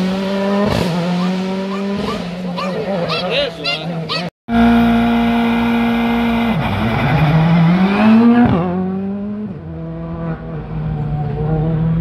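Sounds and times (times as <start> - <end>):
rally car engine accelerating: 4.0 - 12.0.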